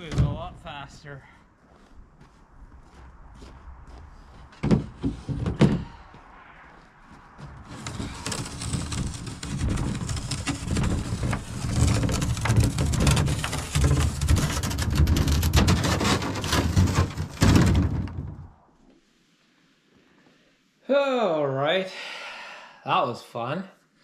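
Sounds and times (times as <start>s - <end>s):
hull scraping down snow: 2.4s - 18.0s
small knocks and bumps: 4.5s - 5.9s, 7.4s - 18.4s.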